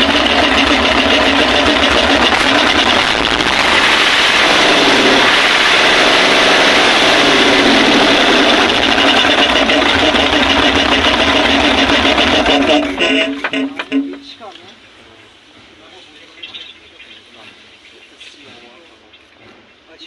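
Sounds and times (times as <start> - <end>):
diesel engine revving: 0.0 - 14.5.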